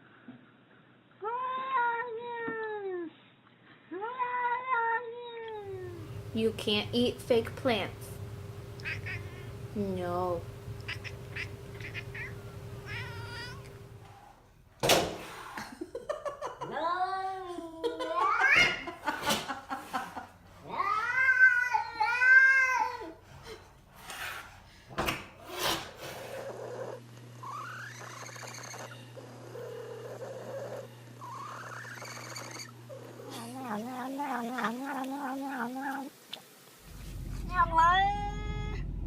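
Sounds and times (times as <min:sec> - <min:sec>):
cat yowling: 0:08.8 - 0:09.4, 0:10.8 - 0:13.7, 0:37.4 - 0:39.0
low pulsing warble: 0:36.8 - 0:39.0.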